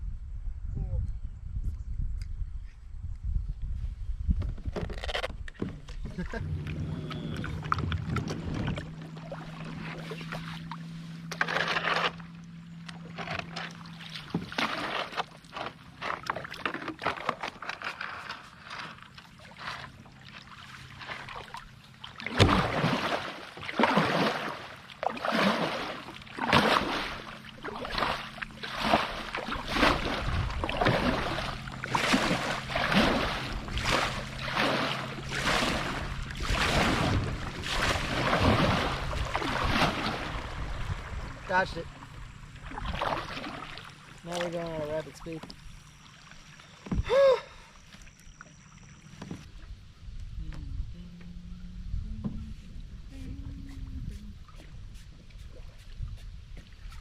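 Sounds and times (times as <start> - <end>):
kayak paddle splashing water: 5.0 - 49.8.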